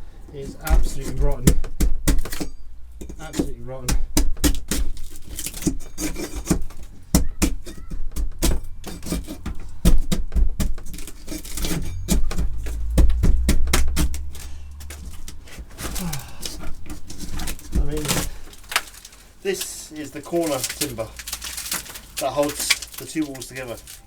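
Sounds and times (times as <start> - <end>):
wooden timbers knocking and rubbing: 0.3 - 24.0
low handling rumble: 8.3 - 24.0.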